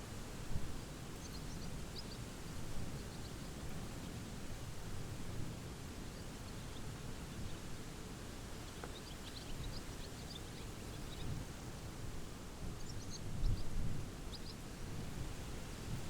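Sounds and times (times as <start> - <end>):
small bird chirping: 1.1 - 4.4, 8.5 - 11.4, 12.8 - 13.7, 14.3 - 14.6.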